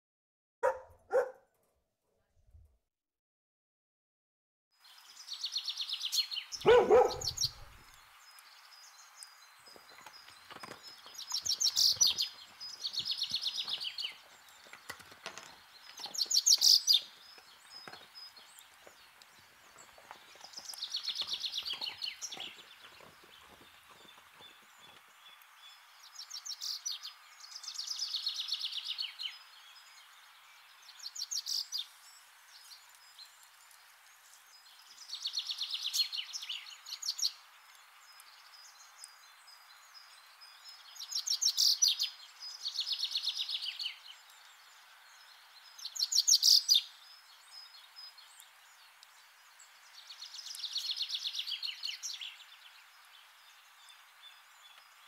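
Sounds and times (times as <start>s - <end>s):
faint outdoor hiss: 4.8s - 55.0s
bird trilling: 6.6s - 7.7s.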